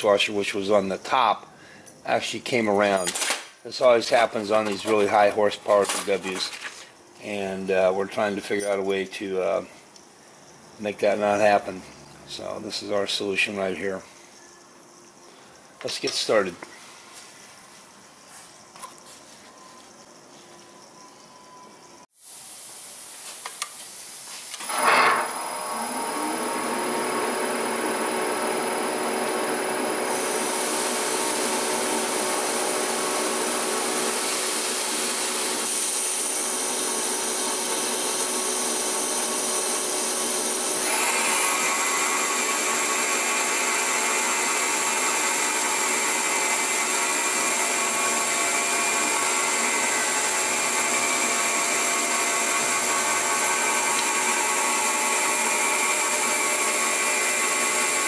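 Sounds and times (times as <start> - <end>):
milling machine whine and hiss: 22.2 - 58.0.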